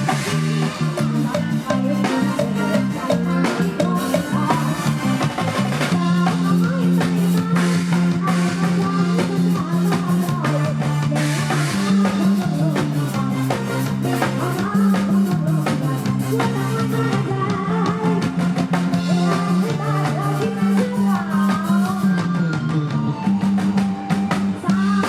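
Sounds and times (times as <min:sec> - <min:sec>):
wavering instrumental melody: 0:00.0 - 0:06.5
drum kit beat: 0:00.0 - 0:25.0
held bass notes: 0:00.0 - 0:25.0.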